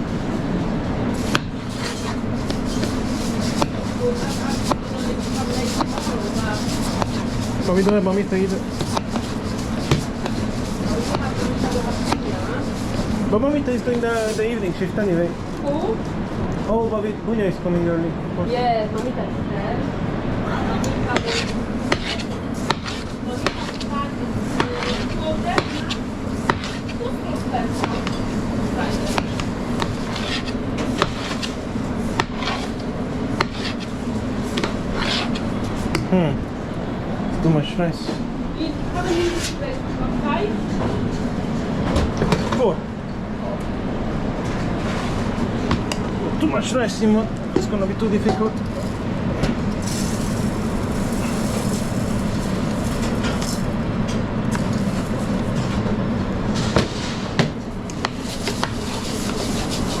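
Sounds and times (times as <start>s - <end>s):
low kitchen hum: 0.0s - 60.0s
rice stirred in a pan: 1.2s - 13.3s, 21.0s - 36.0s, 48.6s - 53.8s, 57.8s - 60.0s.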